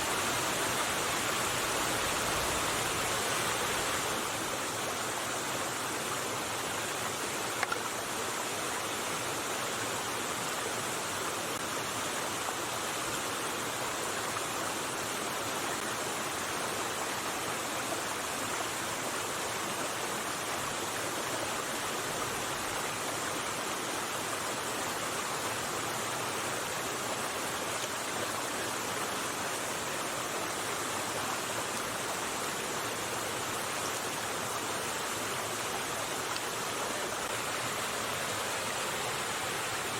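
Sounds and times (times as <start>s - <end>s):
river rushing over stones: 0.0s - 39.9s
small click: 7.6s - 7.9s.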